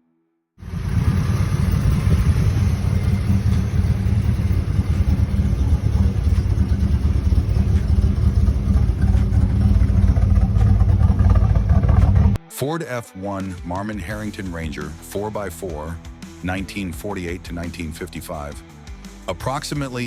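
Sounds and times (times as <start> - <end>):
vehicle engine deep rumble: 0.6 - 12.4.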